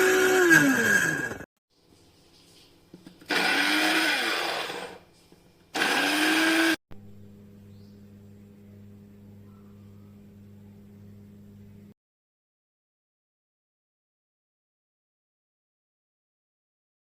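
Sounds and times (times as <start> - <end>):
electric grinder motor spinning up: 0.0 - 1.5, 3.3 - 5.0, 5.8 - 6.8
steady low hum: 6.9 - 12.0.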